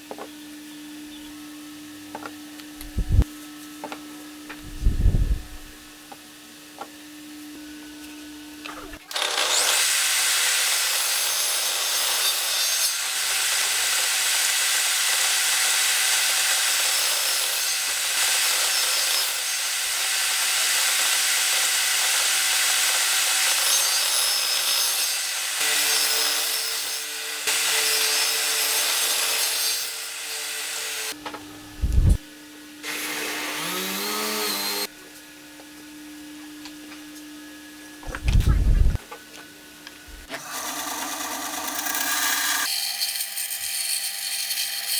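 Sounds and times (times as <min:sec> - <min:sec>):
power tool cutting wood: 0:08.9 - 0:32.2, 0:32.8 - 0:34.9, 0:40.1 - 0:44.9.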